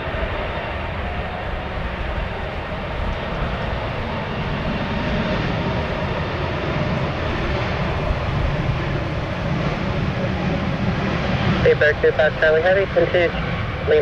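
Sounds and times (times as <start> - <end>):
jet engines whooshing: 0.0 - 14.0
wind buffeting microphone: 0.0 - 14.0.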